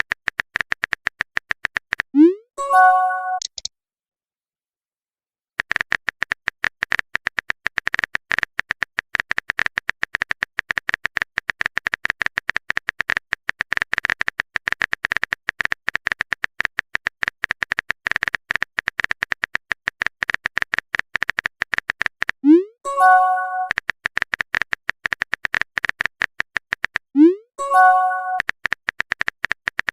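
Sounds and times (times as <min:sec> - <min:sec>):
message sent swoop and chime: 0:02.2 - 0:03.6, 0:27.2 - 0:28.4
phone keyboard typing clicks: 0:03.3 - 0:03.7, 0:05.6 - 0:22.4, 0:23.0 - 0:27.1, 0:27.7 - 0:29.9.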